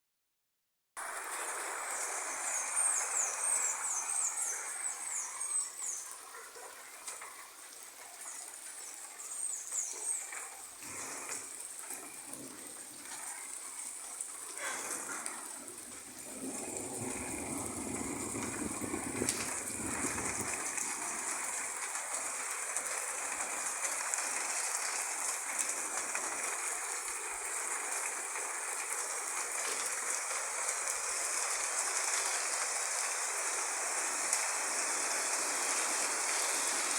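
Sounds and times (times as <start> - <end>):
steady rain falling: 1.0 - 36.9.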